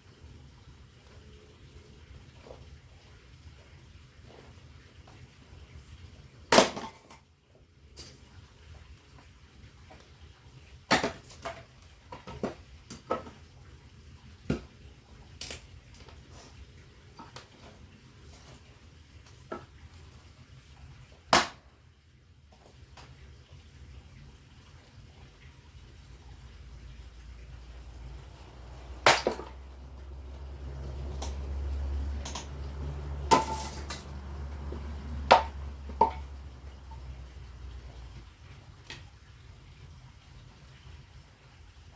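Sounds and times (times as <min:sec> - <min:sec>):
firewood knocking and clattering: 0:27.8 - 0:37.0.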